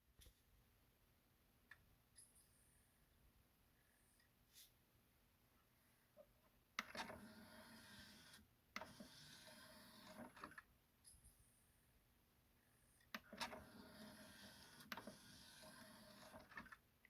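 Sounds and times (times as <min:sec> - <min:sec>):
cd player mechanism whirring: 0:13.2 - 0:16.8.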